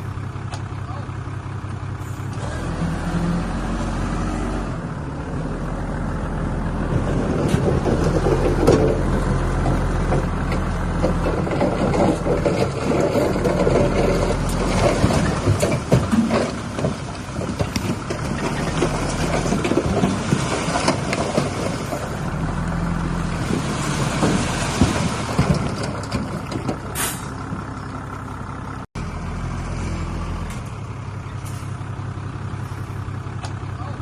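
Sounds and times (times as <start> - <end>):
heavy machinery diesel engine: 0.0 - 34.0
clanks and knocks: 7.0 - 22.2, 23.4 - 27.7.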